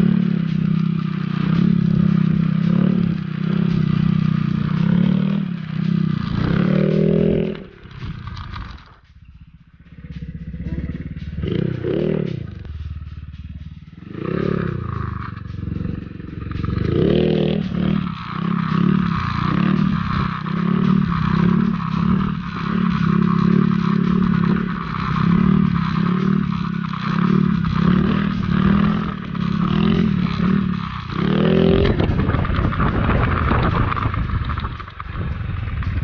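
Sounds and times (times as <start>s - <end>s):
scooter engine running: 0.0s - 36.0s
rushing wind noise: 27.6s - 36.0s.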